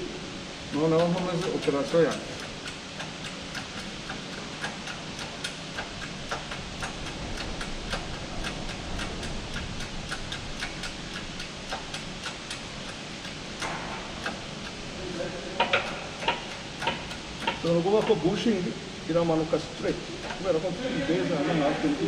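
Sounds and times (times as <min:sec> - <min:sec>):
tool clicking: 0:00.9 - 0:14.8, 0:15.6 - 0:18.2.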